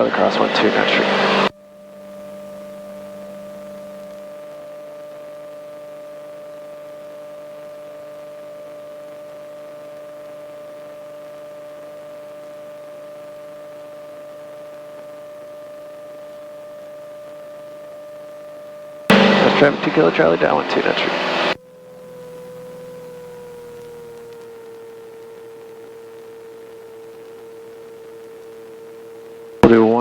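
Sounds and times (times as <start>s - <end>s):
electrical hum: 0.0s - 10.9s, 19.1s - 30.0s.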